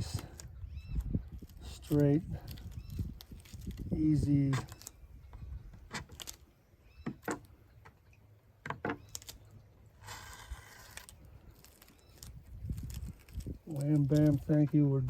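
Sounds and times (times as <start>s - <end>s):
rustling scrape: 10.0s - 13.5s.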